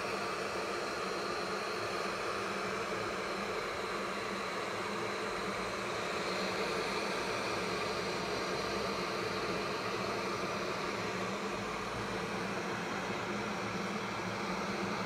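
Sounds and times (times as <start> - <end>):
electric kettle heating water: 0.0 - 15.0.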